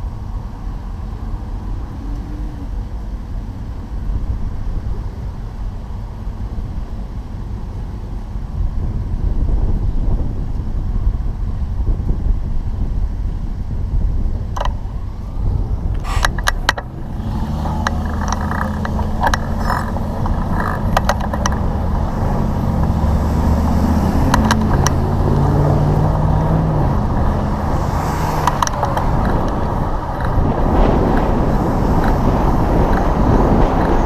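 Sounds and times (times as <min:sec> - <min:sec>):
vehicle engine running: 0:00.0 - 0:34.0
wind buffeting microphone: 0:00.0 - 0:34.0
sharp clicks: 0:16.0 - 0:17.0, 0:17.7 - 0:21.7, 0:28.4 - 0:29.6.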